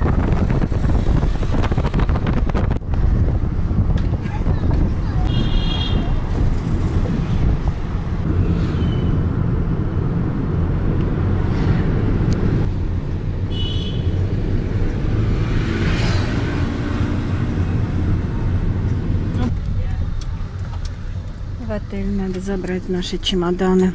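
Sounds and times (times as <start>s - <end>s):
car cabin road rumble: 0.0s - 23.9s.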